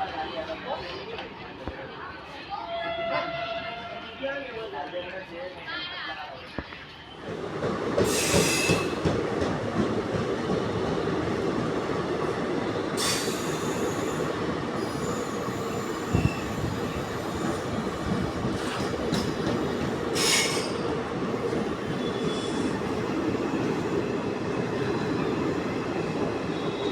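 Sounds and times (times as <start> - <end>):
train wheels rumbling on rails: 7.2 - 26.9
high wheel squeals: 13.0 - 18.7, 21.9 - 22.9.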